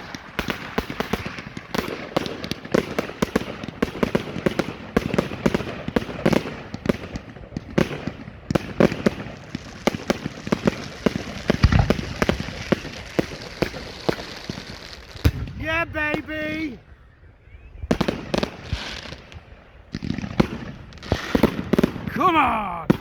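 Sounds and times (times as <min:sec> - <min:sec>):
fireworks bangs and crackles: 0:00.0 - 0:17.0, 0:17.8 - 0:23.0.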